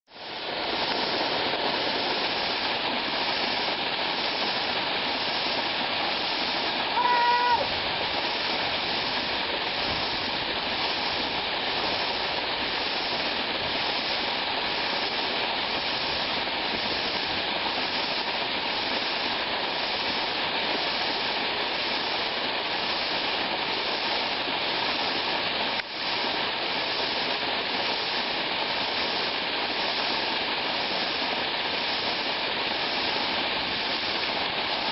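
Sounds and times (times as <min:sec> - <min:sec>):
waterfall rushing: 0:00.1 - 0:34.9
brief high-pitched call: 0:06.9 - 0:07.7.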